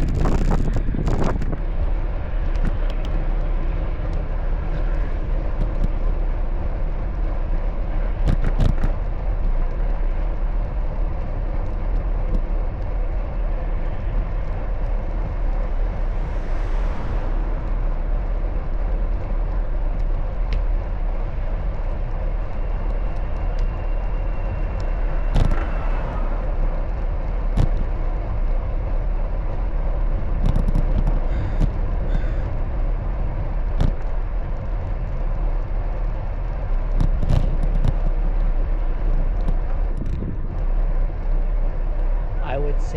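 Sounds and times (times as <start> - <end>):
passing road traffic: 0.0 - 42.9
wind rumble on microphone: 0.0 - 42.9.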